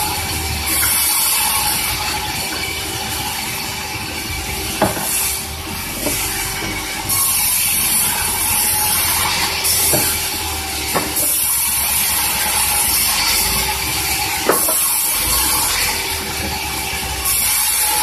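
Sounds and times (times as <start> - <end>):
sawmill saw cutting log: 0.0 - 18.0
sharp knocks: 4.8 - 5.3, 10.9 - 11.4.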